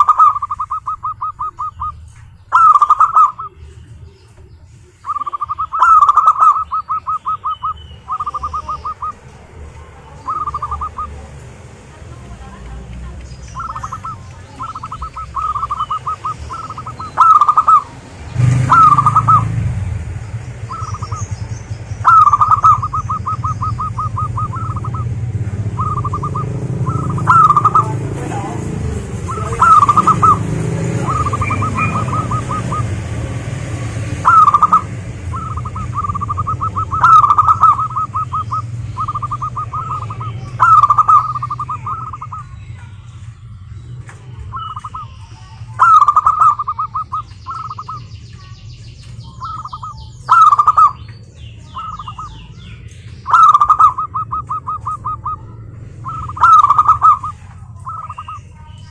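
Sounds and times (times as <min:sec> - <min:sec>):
dove rolling coos: 0:00.0 - 0:03.6, 0:05.0 - 0:09.2, 0:10.2 - 0:11.2, 0:13.6 - 0:21.3, 0:22.0 - 0:28.2, 0:28.9 - 0:42.4, 0:45.8 - 0:48.0, 0:49.4 - 0:51.0, 0:53.3 - 0:58.4.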